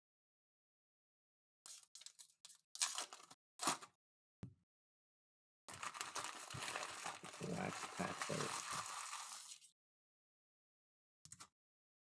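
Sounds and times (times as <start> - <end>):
card pack wrappers crinkling: 1.7 - 3.9, 5.7 - 9.7.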